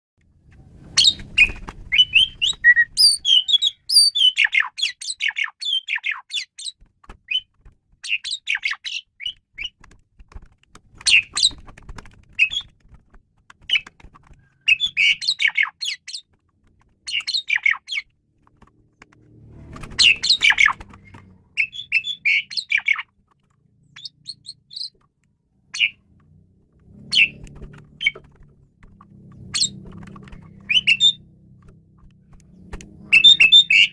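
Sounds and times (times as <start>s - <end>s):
starling singing: 1.0s - 9.8s, 12.4s - 12.7s, 14.5s - 16.4s, 17.0s - 18.1s, 19.9s - 23.1s, 23.9s - 24.9s, 25.7s - 26.0s, 27.0s - 28.4s, 29.3s - 31.3s, 32.5s - 33.9s.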